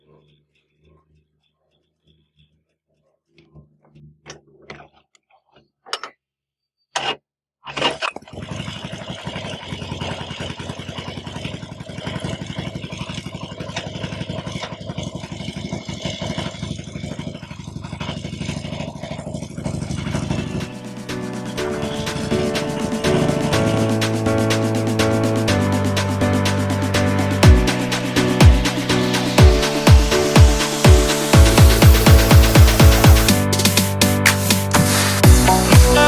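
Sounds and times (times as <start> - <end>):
motorcycle engine idling: 9.4 - 36.0.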